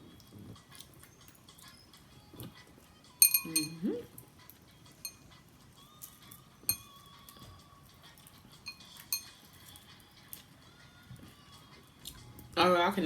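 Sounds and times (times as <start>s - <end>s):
tableware clinking: 3.2s - 3.9s, 5.0s - 5.2s, 6.7s - 7.0s, 8.7s - 9.4s.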